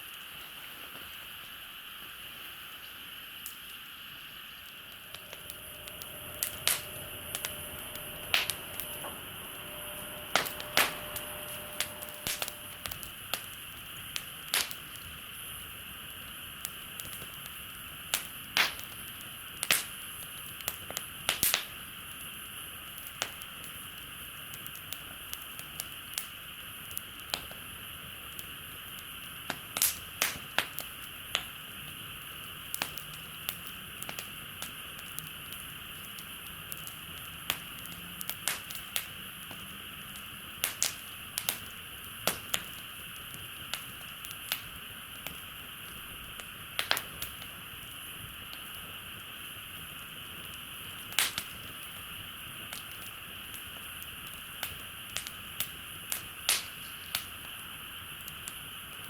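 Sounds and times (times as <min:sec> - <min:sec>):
campfire crackling and popping: 0:00.0 - 0:59.0
high-pitched background hiss: 0:00.0 - 0:59.0.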